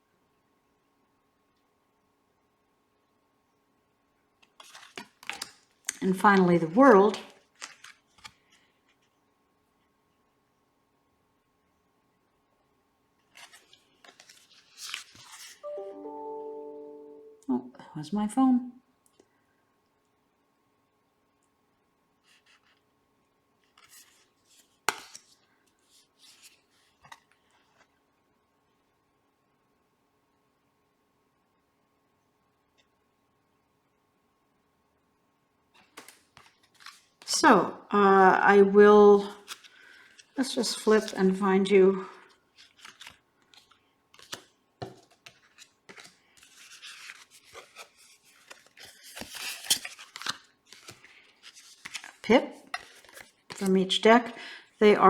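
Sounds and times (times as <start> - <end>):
cards rustling and sliding: 4.6 - 5.5, 7.6 - 8.6, 13.3 - 15.6, 35.8 - 37.1, 42.6 - 53.6.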